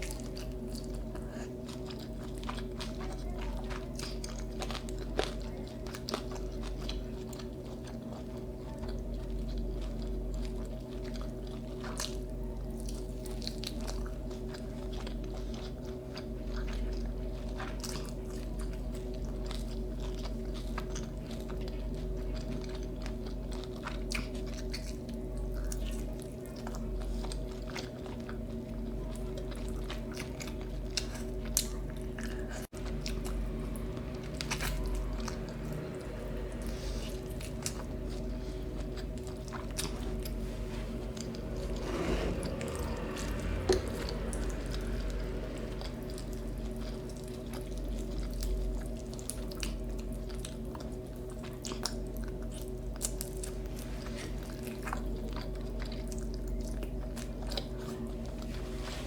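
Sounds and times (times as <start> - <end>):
person chewing food: 0.0 - 59.0
low hum: 29.0 - 53.8.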